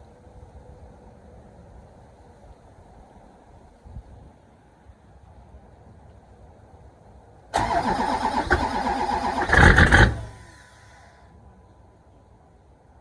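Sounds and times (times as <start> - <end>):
diesel engine cranking: 7.6 - 10.9.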